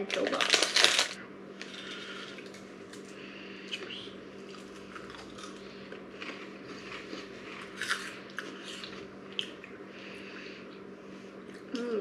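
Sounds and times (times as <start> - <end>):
crunching rice crackers: 0.0 - 10.2.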